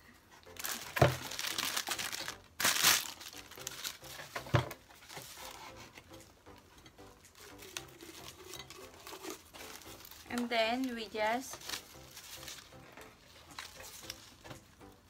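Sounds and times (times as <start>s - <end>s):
plastic wrapping crinkling: 0.4s - 14.8s.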